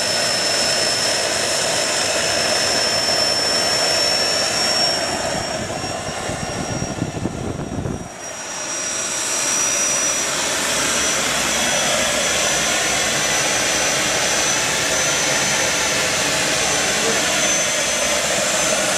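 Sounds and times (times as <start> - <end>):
exhaust rush: 0.0 - 18.9
turbine whine: 0.0 - 18.9
low rumble: 5.2 - 8.4.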